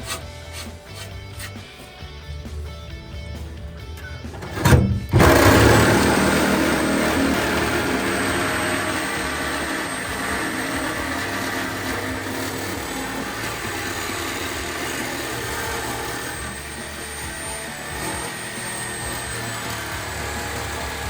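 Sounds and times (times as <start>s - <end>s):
power tool whirring: 0.0s - 1.8s, 3.9s - 21.0s
thin high whine: 4.3s - 21.0s.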